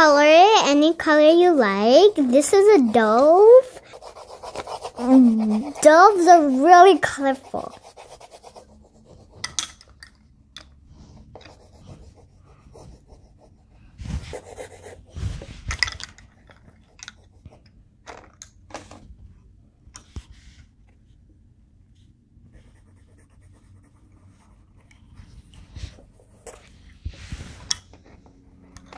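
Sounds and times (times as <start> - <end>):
crayon scratching on paper: 0.1 - 9.5, 11.4 - 15.6, 16.6 - 17.6, 22.5 - 24.7.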